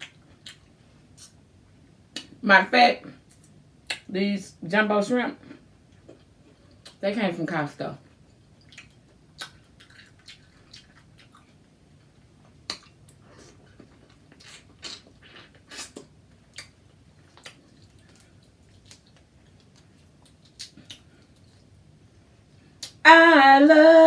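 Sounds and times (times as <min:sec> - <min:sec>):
wet chewing: 0:08.6 - 0:21.8.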